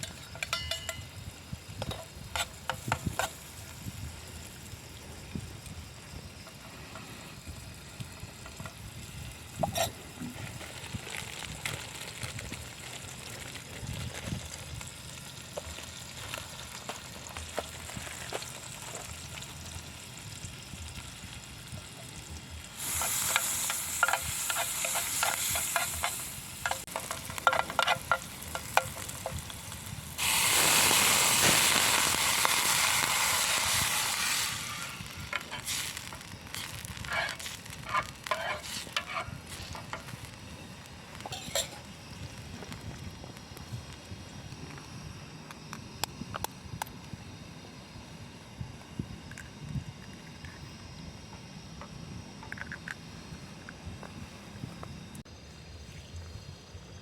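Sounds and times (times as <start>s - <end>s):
bursts of hiss: 22.7s - 42.6s.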